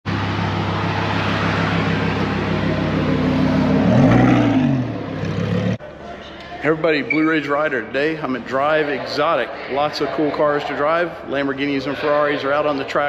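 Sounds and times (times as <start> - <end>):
sports car engine running: 0.0 - 5.8.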